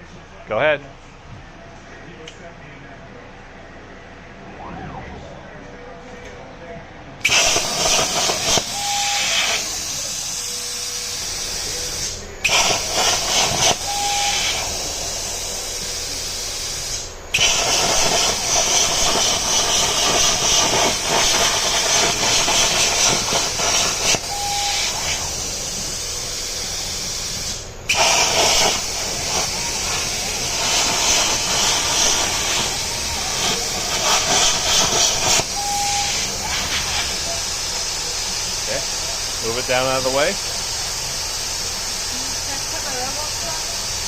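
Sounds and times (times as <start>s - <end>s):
short beep: 4.4s - 6.2s, 8.7s - 9.3s, 13.8s - 14.6s, 24.2s - 25.0s, 35.5s - 36.3s
plasma cutter hissing: 7.2s - 44.0s.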